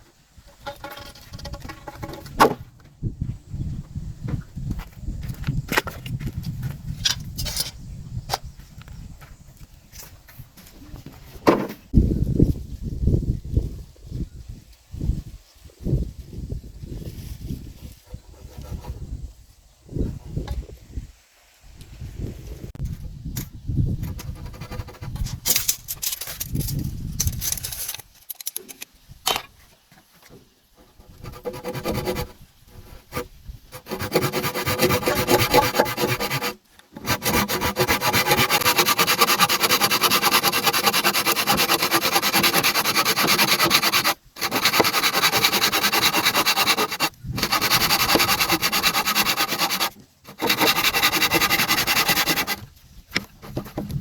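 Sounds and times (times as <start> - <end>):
hand tool rubbing on wood: 31.2 - 52.7.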